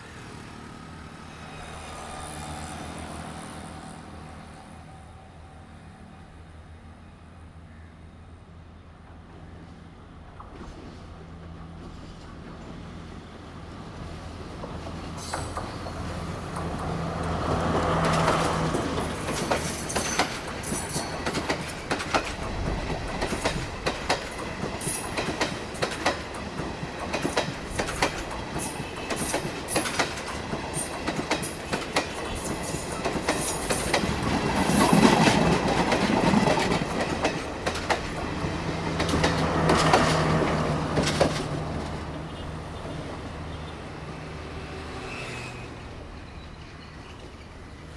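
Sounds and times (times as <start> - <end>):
diesel train engine hum: 0.0 - 47.9
train wheels clicking on rail joints: 10.3 - 42.2.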